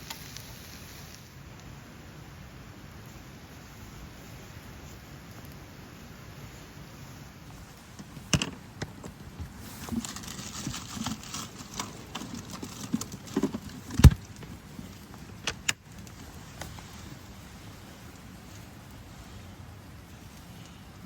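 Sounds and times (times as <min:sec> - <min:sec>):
light rustling: 0:07.0 - 0:20.9.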